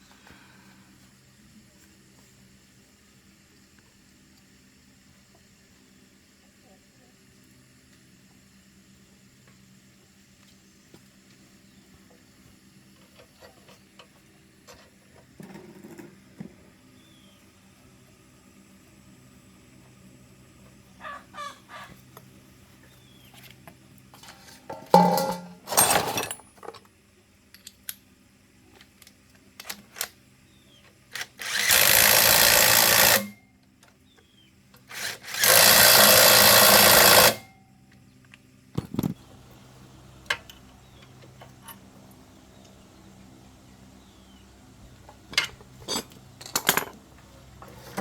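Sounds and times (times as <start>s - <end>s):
power tool bursts: 31.1s - 33.4s, 34.9s - 37.5s.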